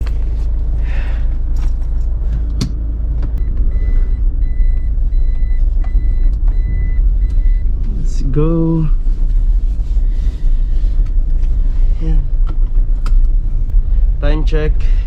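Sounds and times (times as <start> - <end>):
car engine rumble inside cabin: 0.0 - 15.0
high electronic warning beeps: 3.4 - 7.7.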